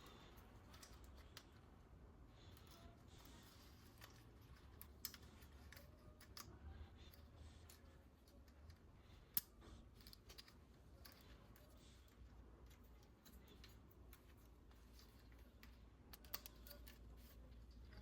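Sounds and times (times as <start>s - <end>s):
plastic toy parts clicking: 2.5s - 18.0s.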